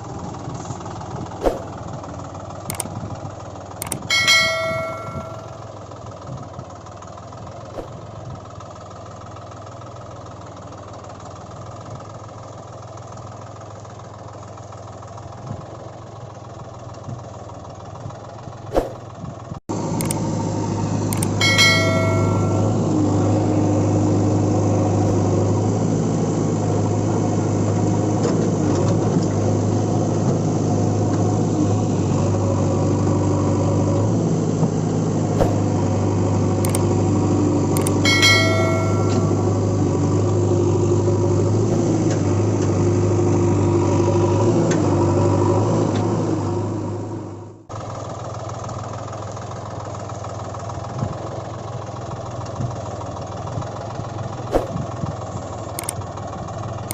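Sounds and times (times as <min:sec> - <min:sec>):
toy vehicle engine hum: 0:00.0 - 0:11.8, 0:15.1 - 0:45.4, 0:47.7 - 0:56.9
short ringing chime: 0:03.8 - 0:05.7, 0:21.2 - 0:22.9, 0:37.8 - 0:39.6.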